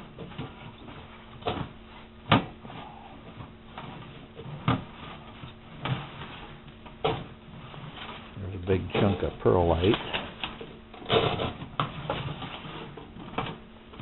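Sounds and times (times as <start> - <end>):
clunks and scraping in metal stove: 3.3 - 13.7.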